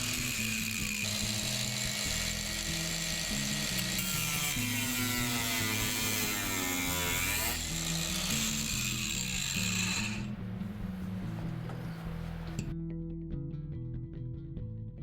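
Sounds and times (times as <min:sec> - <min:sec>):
power drill drilling metal: 0:00.0 - 0:10.3
background music with bass line: 0:00.0 - 0:15.0.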